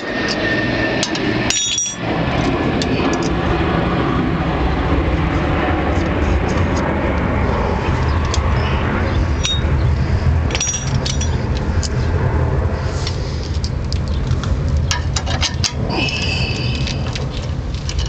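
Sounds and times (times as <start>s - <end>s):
steady low rumble: 0.0s - 18.0s
metal tools clicking and clinking: 1.0s - 2.0s, 9.4s - 9.7s, 10.5s - 11.9s, 14.9s - 16.2s, 16.8s - 18.0s
high metallic ringing: 1.4s - 2.2s, 9.4s - 9.8s, 10.5s - 11.5s.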